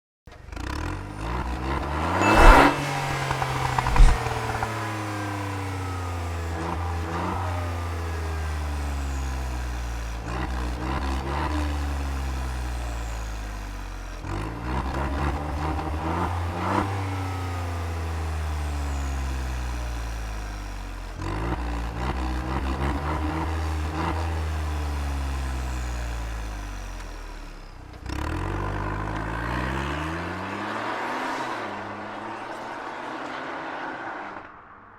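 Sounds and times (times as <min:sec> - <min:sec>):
car engine revving: 0:00.5 - 0:19.1, 0:28.1 - 0:34.9
exhaust cracks: 0:01.5 - 0:07.2.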